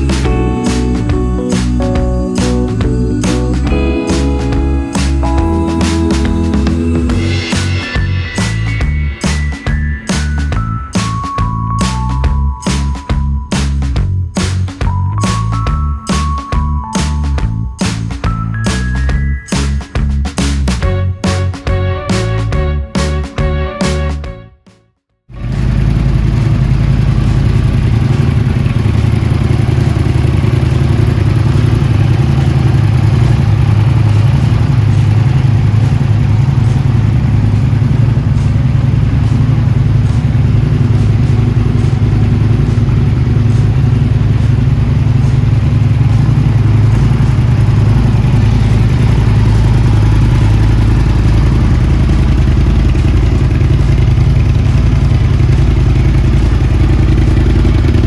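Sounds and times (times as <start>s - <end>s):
motorcycle engine idling: 25.4s - 58.0s.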